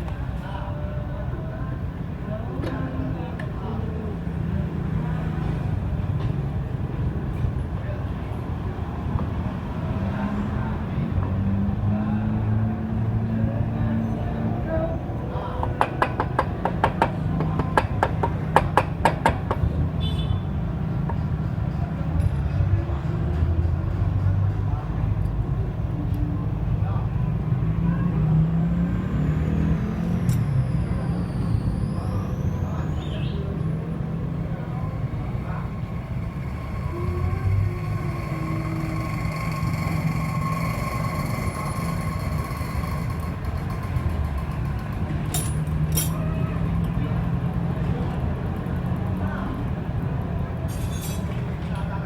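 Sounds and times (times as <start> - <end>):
vehicle engine idling: 0.0 - 50.7
thin steady whine: 34.4 - 43.2.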